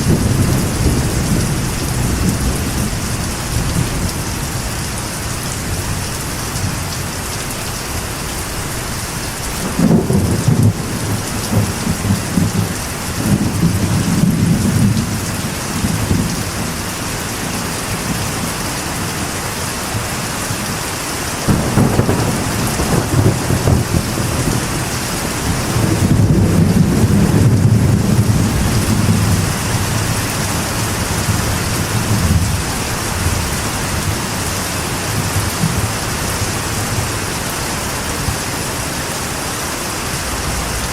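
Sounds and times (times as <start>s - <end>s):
thunder rolling: 0.0s - 6.0s, 9.6s - 16.8s, 21.5s - 37.2s
heavy rain on a metal roof: 0.0s - 40.9s.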